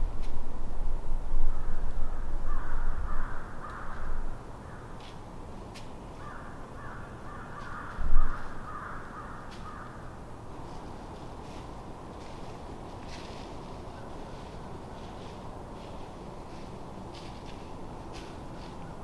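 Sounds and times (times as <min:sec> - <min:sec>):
bird cawing: 0:01.5 - 0:05.0, 0:06.2 - 0:10.1.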